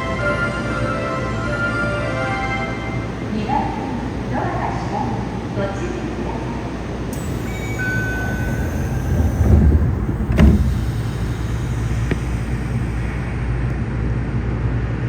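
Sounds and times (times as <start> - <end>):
train low rumble: 0.0 - 15.0
door click: 7.2 - 12.4
doors shutting thud: 7.2 - 13.3
short steady tone: 7.2 - 13.8.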